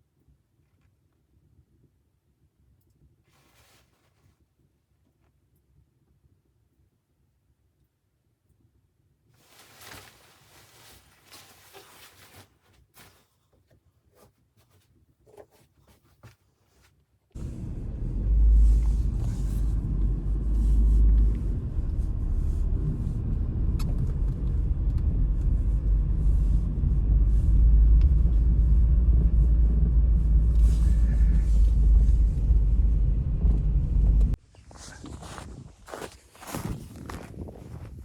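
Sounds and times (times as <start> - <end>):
blizzard wind buffeting microphone: 17.4 - 38.0.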